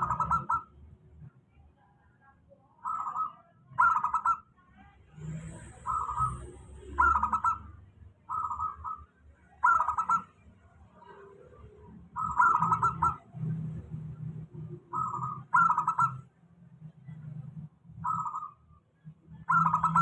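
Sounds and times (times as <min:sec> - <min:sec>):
dove cooing: 0:00.0 - 0:00.7, 0:02.8 - 0:04.4, 0:05.8 - 0:07.7, 0:09.6 - 0:10.3, 0:12.1 - 0:13.8, 0:14.8 - 0:16.2, 0:19.4 - 0:20.0.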